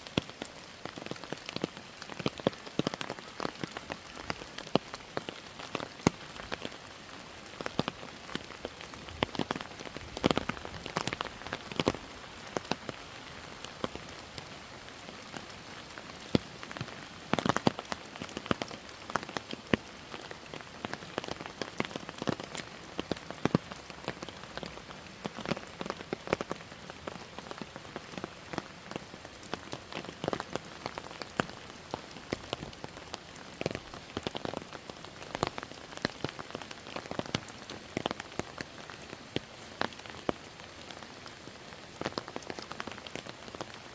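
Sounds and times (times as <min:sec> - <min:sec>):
raindrops tapping close by: 0:00.0 - 0:43.9
steady rainfall hiss: 0:00.0 - 0:43.9.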